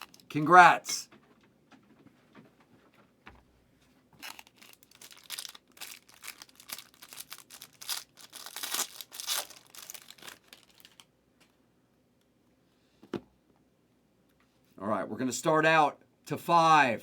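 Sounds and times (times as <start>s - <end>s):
wrapper ripping and crackling: 0.0s - 0.3s, 4.2s - 11.1s.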